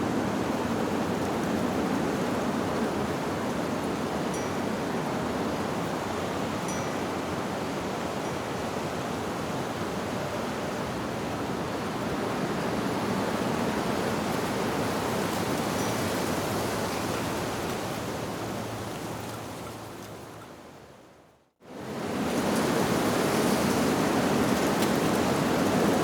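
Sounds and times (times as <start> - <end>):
wind rushing through leaves: 0.0 - 26.0
faint wind chime: 4.3 - 4.8, 6.6 - 7.4, 8.1 - 8.6, 15.7 - 17.2.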